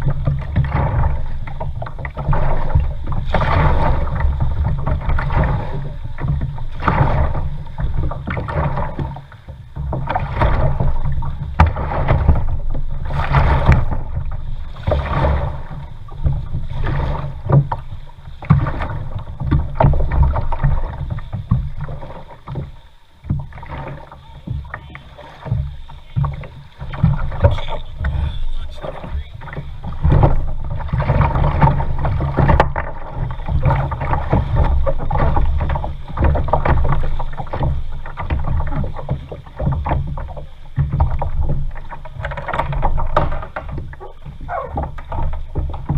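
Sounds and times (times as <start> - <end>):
kayak paddle swishing water: 0.0 - 45.9
steady low rumble: 23.0 - 35.3.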